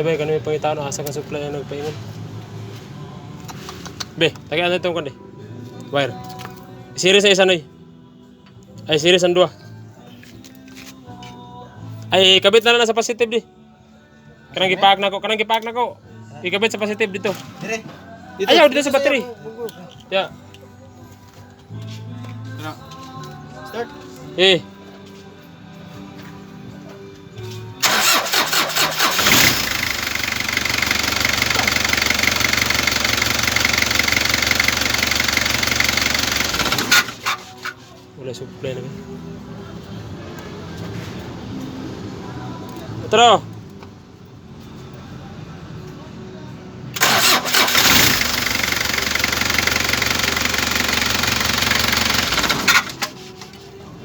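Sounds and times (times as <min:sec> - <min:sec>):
diesel engine idling: 0:27.8 - 0:37.5, 0:47.0 - 0:53.4
starter cranking engine: 0:27.8 - 0:37.8, 0:47.0 - 0:53.4.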